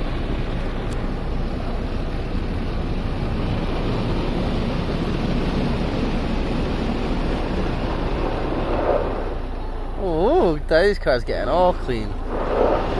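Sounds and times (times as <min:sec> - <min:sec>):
water spray rushing: 0:00.0 - 0:10.0, 0:11.9 - 0:12.9
rotating brushes on car body: 0:12.1 - 0:12.9.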